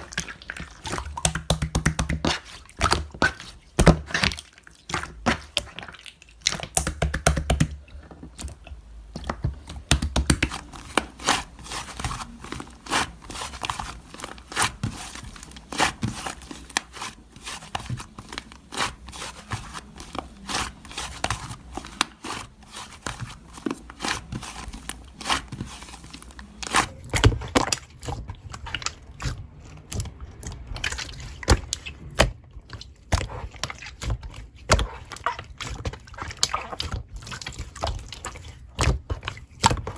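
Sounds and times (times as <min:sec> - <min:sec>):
slime clicking and popping: 0:00.2 - 0:11.4.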